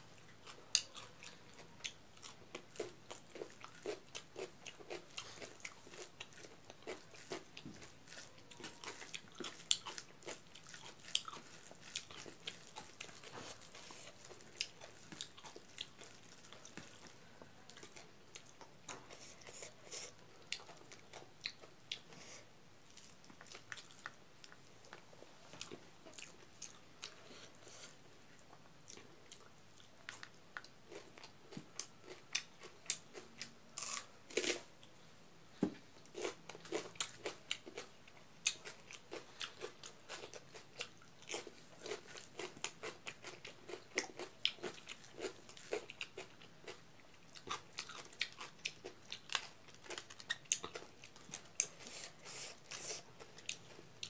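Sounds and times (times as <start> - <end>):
crunching cucumber: 33.8 - 34.7.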